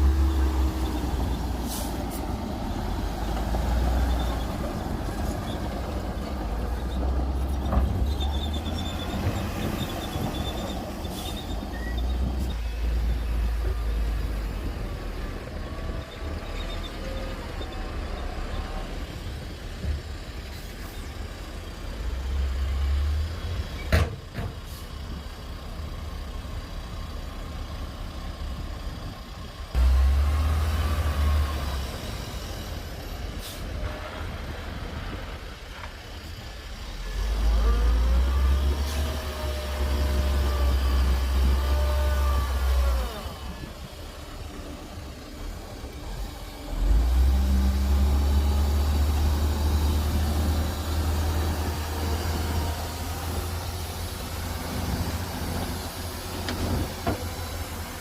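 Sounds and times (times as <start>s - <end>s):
heavy diesel machinery rumbling: 0.0s - 58.0s.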